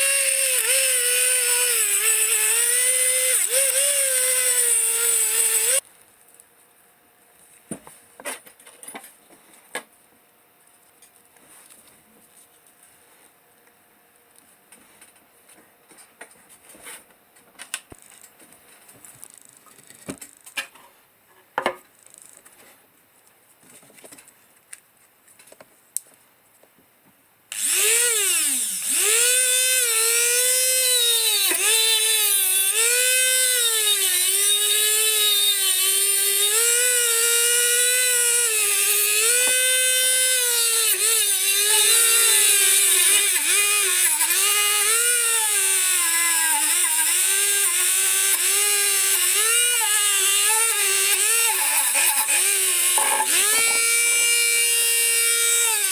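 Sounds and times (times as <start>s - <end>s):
electric power tool whining: 0.0s - 5.8s, 27.5s - 55.9s.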